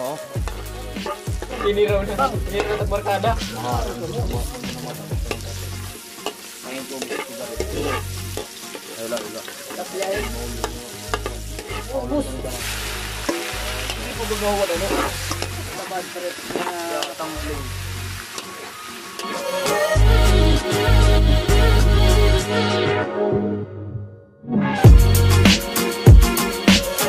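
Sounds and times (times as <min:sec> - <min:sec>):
metal ladle scraping wok: 0:00.0 - 0:03.2, 0:04.1 - 0:19.8
food sizzling in hot oil: 0:00.0 - 0:22.4.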